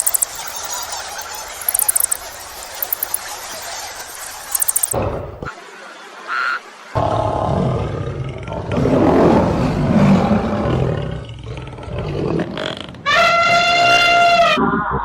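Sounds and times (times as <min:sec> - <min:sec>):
animal high steady call: 0:00.0 - 0:05.0
animal low rough roar: 0:07.0 - 0:13.0.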